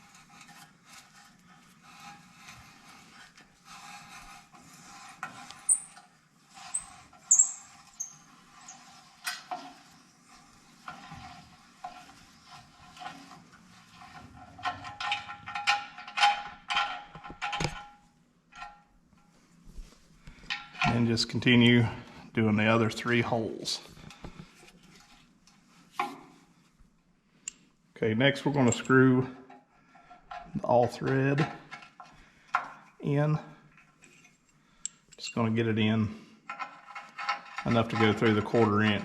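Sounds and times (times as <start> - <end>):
metal scraping with squeaks: 0.0 - 17.1, 35.2 - 39.0.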